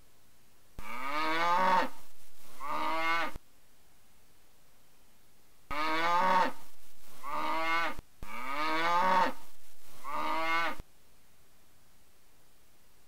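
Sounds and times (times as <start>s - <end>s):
cow mooing: 0.8s - 2.0s, 2.6s - 3.4s, 5.7s - 6.6s, 7.2s - 9.4s, 10.0s - 10.8s.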